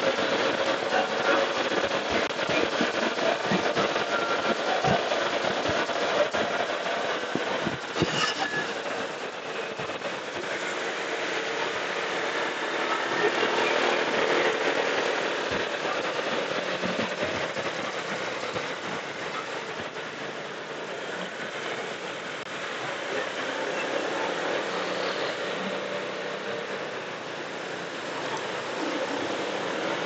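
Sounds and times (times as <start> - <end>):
motorcycle road noise in traffic: 19.3 - 30.0.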